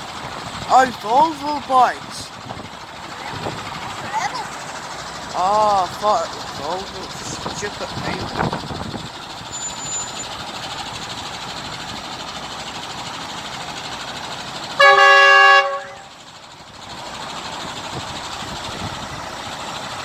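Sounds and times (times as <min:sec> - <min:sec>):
passing engines: 0:00.0 - 0:20.0
truck horn blast: 0:14.7 - 0:16.1.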